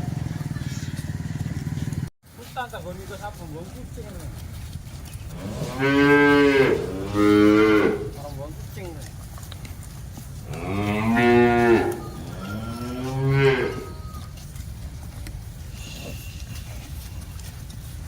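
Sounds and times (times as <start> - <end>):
cattle mooing: 5.2 - 8.3, 10.4 - 14.3.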